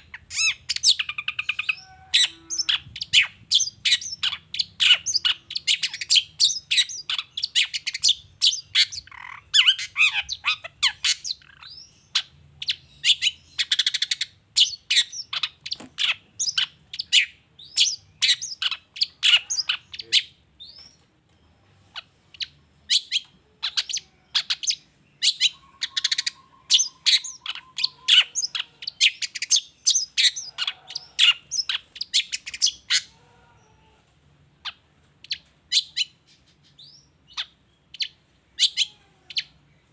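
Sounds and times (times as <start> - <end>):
shrike singing chattering song: 22.3 - 33.1.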